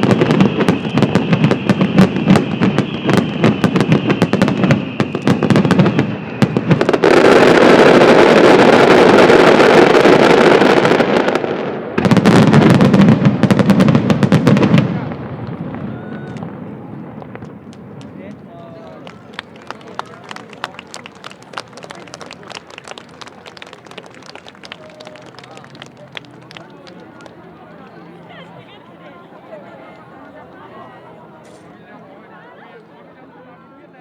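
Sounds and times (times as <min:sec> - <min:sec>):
fireworks bursting and crackling: 0:00.0 - 0:28.1
faint high whistle: 0:00.3 - 0:06.7.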